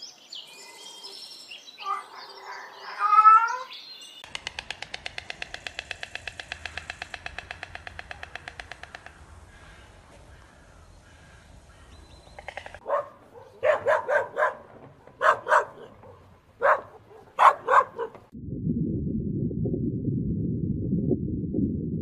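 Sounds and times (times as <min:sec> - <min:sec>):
dog barking: 0:12.8 - 0:18.3
low rumbling noise: 0:18.2 - 0:22.0.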